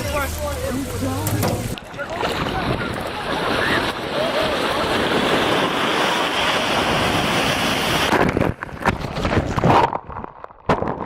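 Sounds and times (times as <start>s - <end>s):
wind buffeting microphone: 1.6s - 9.9s.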